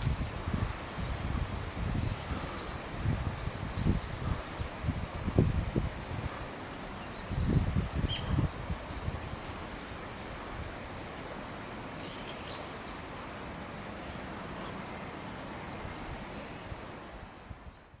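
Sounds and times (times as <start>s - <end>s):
background hiss: 0.0s - 17.9s
faint bird chirps: 6.1s - 8.4s.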